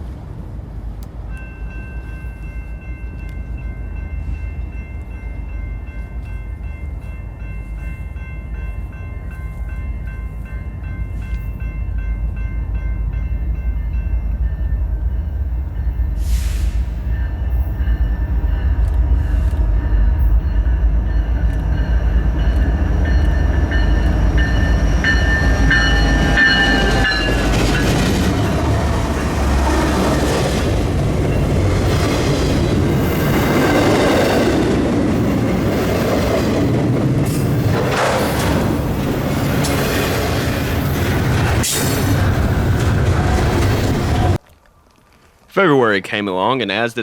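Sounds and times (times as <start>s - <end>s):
locomotive rumble: 13.7s - 44.4s.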